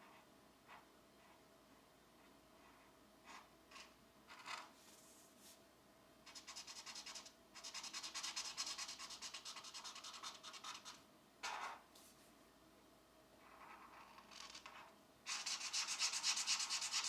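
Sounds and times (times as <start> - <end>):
pencil shading scratching paper: 6.3 - 11.0, 13.4 - 17.0.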